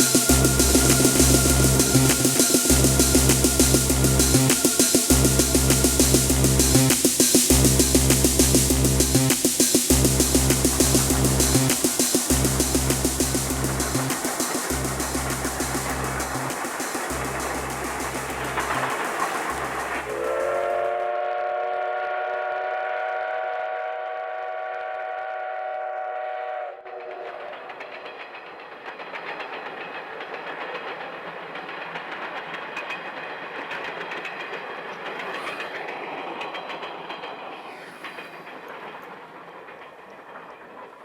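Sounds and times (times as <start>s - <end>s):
steam locomotive whistle: 0.0s - 8.6s, 9.9s - 27.1s
synthesizer music: 0.0s - 20.5s
train rail clatter: 0.0s - 21.2s, 24.5s - 41.0s.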